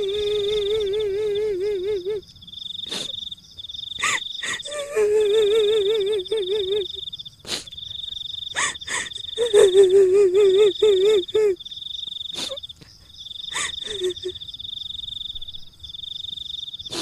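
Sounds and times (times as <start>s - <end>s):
crickets chirring: 0.0s - 17.0s
woman's high quavering wail-laugh: 4.0s - 7.7s, 8.5s - 11.6s, 12.4s - 14.4s.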